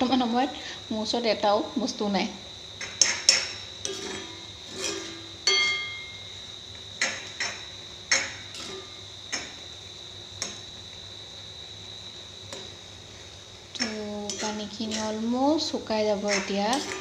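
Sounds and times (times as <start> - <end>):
utensil knocking and scraping in pan: 2.8 - 6.1, 7.0 - 9.7, 10.4 - 10.7, 13.7 - 17.0.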